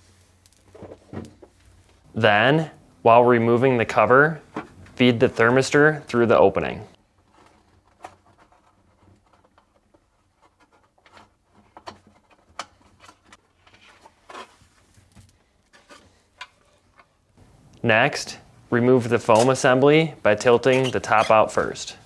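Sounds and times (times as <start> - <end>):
plastic parts rubbing: 19.1 - 22.0.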